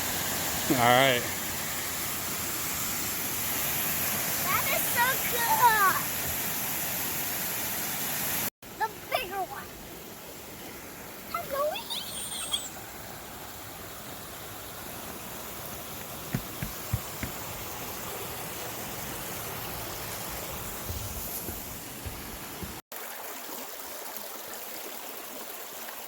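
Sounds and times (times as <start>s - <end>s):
waterfall rushing: 0.0s - 9.7s
soft low thumps: 16.0s - 17.7s, 20.3s - 22.8s.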